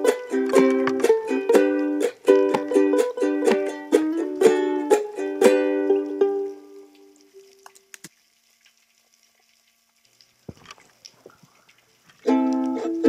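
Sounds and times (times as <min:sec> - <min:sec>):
ukulele strumming: 0:00.0 - 0:07.4, 0:12.2 - 0:13.0
faint clicks and crackles: 0:06.9 - 0:12.8.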